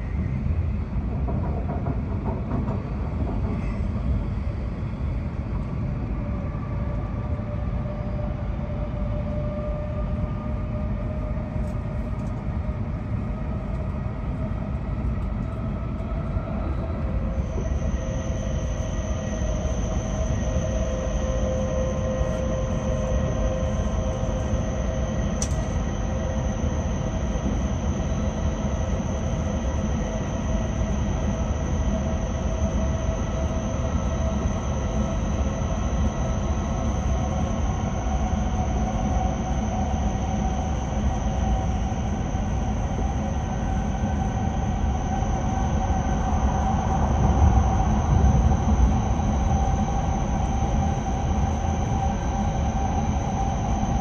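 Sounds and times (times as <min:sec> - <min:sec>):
wheels rumbling on rail: 0:00.0 - 0:42.2
train motor whine: 0:02.1 - 0:54.0.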